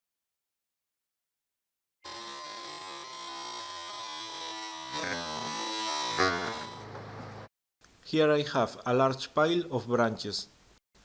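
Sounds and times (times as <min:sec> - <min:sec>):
chainsaw whining: 0:02.1 - 0:07.0.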